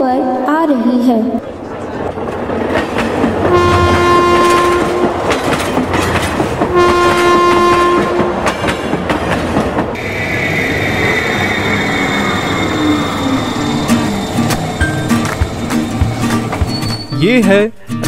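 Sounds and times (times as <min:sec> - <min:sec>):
wheels clacking over rail joints: 0:01.7 - 0:10.0, 0:13.7 - 0:17.1
train horn blasts: 0:03.5 - 0:05.4, 0:06.7 - 0:08.5.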